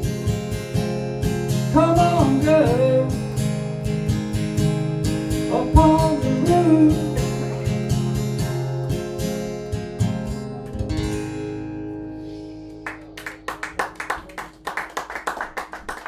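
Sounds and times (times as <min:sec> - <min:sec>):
acoustic guitar strumming: 0:00.0 - 0:15.9
applause: 0:12.8 - 0:16.0.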